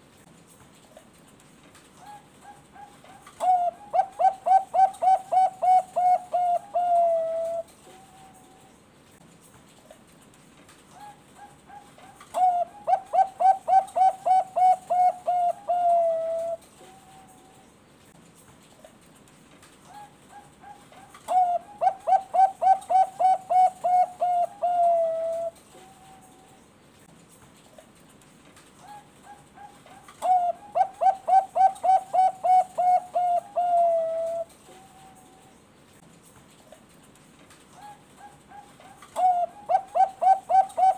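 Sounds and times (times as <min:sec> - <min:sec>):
dove cooing: 0:02.0 - 0:08.8, 0:11.0 - 0:17.6, 0:19.9 - 0:26.6, 0:28.8 - 0:35.6, 0:37.8 - 0:40.9.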